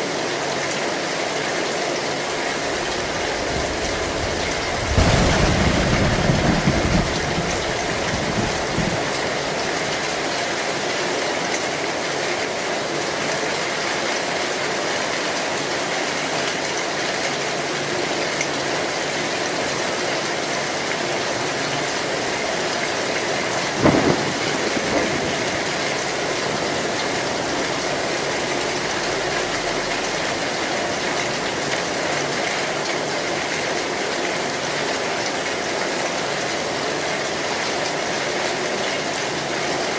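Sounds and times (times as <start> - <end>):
heavy rain on a metal roof: 0.0 - 39.9
low thunder rumble: 2.4 - 10.3, 22.3 - 32.0
sharp thunderclap: 2.5 - 10.3, 22.9 - 31.7.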